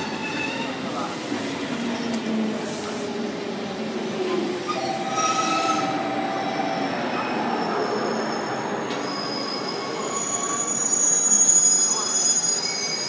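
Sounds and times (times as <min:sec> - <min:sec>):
high-pitched multi-tone squeal: 0:04.7 - 0:13.0.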